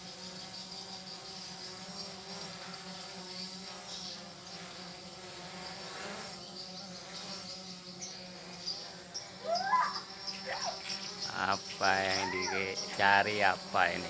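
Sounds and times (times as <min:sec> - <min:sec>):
drone propellers buzzing: 0:08.0 - 0:14.0
steady high chirring: 0:11.1 - 0:14.0.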